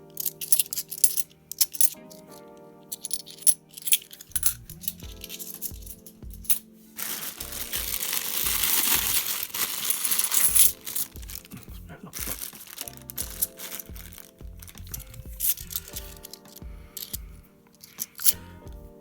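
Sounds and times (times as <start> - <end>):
coins chinking: 0.1 - 2.2, 2.9 - 11.5, 12.2 - 18.4
background music with beat: 3.1 - 19.0
plastic bag rustling: 3.2 - 17.2.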